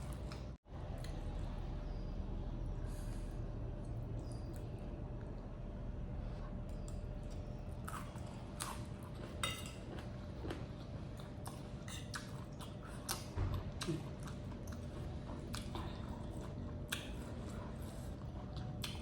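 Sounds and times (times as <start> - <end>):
person chewing: 6.7 - 19.0.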